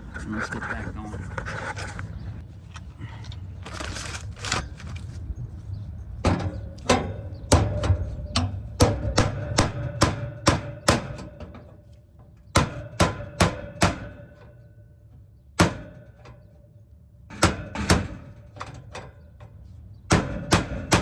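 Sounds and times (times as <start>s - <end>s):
hammer hitting sheet metal: 8.8s - 11.6s, 12.6s - 14.4s, 15.6s - 16.2s, 17.3s - 18.3s, 20.1s - 21.0s.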